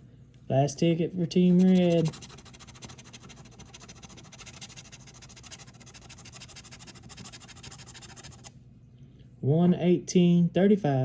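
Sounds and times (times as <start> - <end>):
scratching lottery ticket: 1.3 - 8.5.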